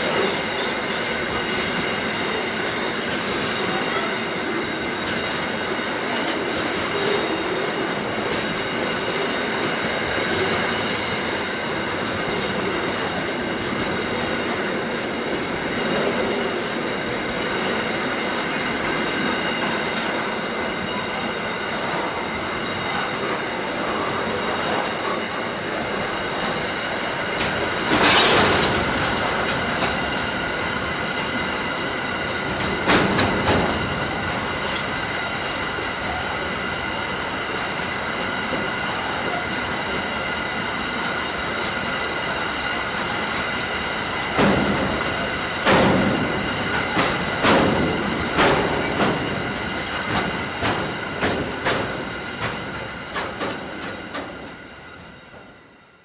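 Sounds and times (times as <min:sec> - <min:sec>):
steel wheels rumbling on rail: 0:00.0 - 0:56.0
wheels clacking over rail joints: 0:22.0 - 0:54.6.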